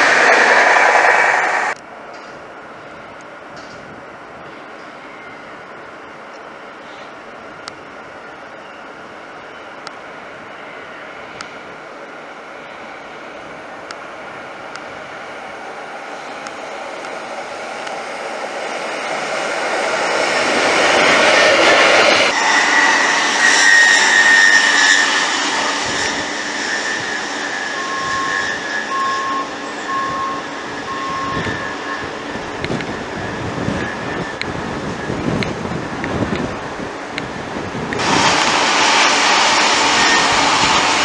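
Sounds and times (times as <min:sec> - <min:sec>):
train passing: 0:00.0 - 0:41.0
high steady ringing tone: 0:22.3 - 0:32.2.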